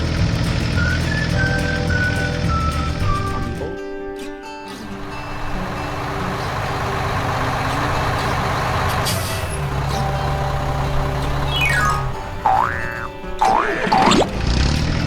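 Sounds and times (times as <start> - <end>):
hiss: 4.8 - 12.5
heavy vehicle engine running: 4.8 - 13.4.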